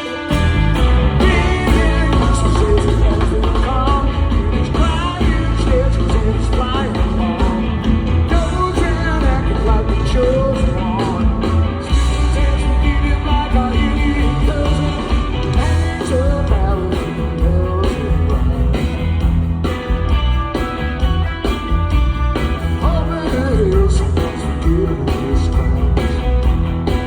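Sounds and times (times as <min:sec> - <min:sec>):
live rock band playing: 0:00.0 - 0:27.0
person singing: 0:01.1 - 0:18.9, 0:22.8 - 0:26.3.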